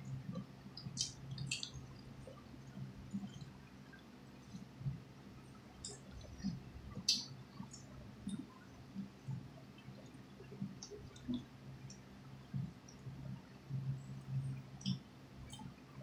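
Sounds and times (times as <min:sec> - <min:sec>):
faint low hum: 0:00.0 - 0:16.0
wet chewing: 0:00.4 - 0:02.1
small sharp clicks: 0:00.8 - 0:02.1.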